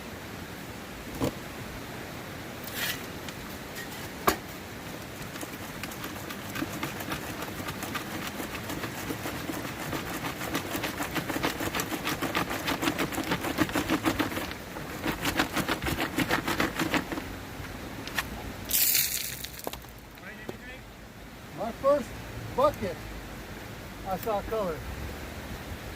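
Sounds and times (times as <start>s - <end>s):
gravel rattling: 18.1s - 20.7s.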